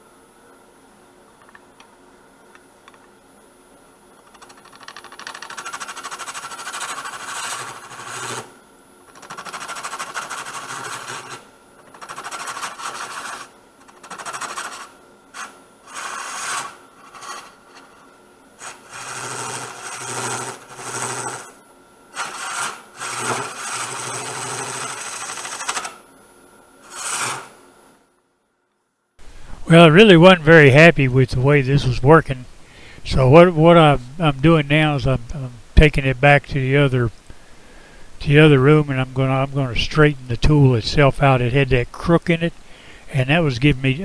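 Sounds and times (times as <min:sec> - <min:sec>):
wood lathe running: 0:04.4 - 0:08.5, 0:09.2 - 0:18.0, 0:18.6 - 0:21.6, 0:22.2 - 0:25.9, 0:26.8 - 0:27.5
tool scraping wet wood: 0:09.3 - 0:17.9, 0:18.6 - 0:21.5, 0:22.2 - 0:25.7, 0:26.9 - 0:27.5.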